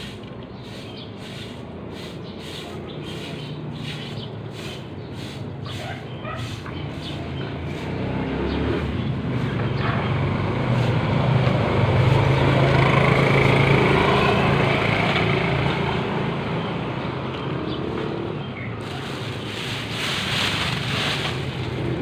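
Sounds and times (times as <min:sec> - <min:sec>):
vehicle passing by: 0:00.0 - 0:22.0.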